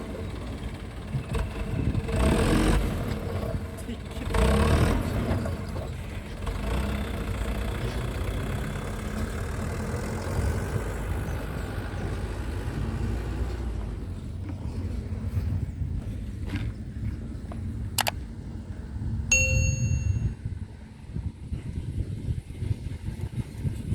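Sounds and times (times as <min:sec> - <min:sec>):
engine rumbling: 0:00.0 - 0:23.9.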